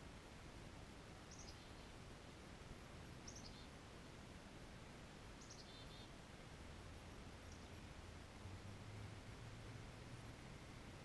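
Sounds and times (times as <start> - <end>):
quiet outdoor hiss: 0.0 - 11.0
faint high bird calls: 1.2 - 2.0, 3.2 - 4.3, 5.4 - 6.2.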